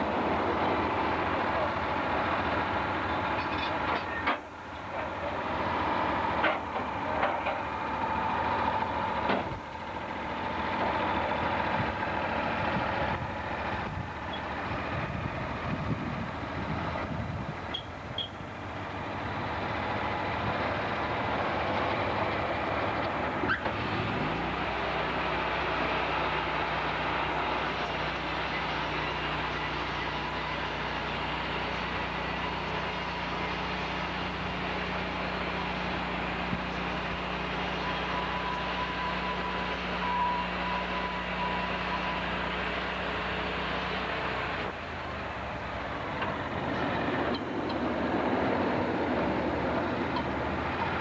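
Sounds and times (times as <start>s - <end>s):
sawmill machinery running: 0.0s - 51.0s
machinery squeal: 3.4s - 4.3s, 14.2s - 14.8s, 17.6s - 18.4s, 36.6s - 42.7s.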